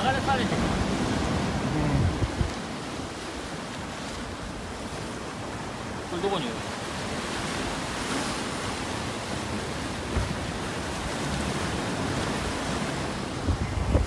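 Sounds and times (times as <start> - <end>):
wind rumbling on microphone: 0.0 - 3.6, 8.7 - 14.0
sea surf rushing: 0.0 - 14.0.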